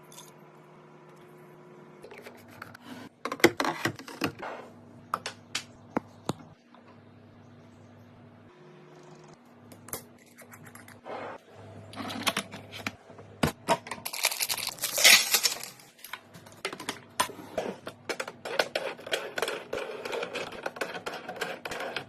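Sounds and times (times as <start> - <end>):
packaging rustle: 14.0 - 16.1.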